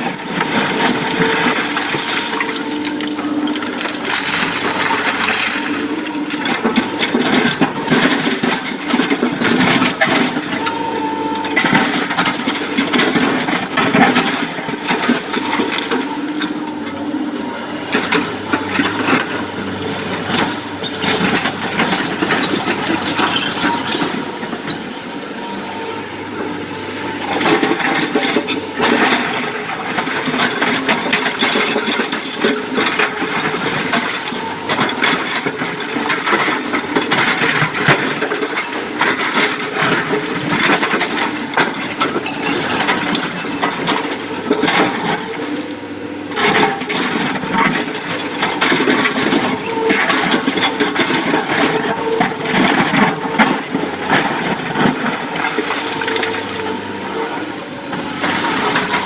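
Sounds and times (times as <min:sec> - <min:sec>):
excavator engine under load: 0:00.0 - 0:59.0.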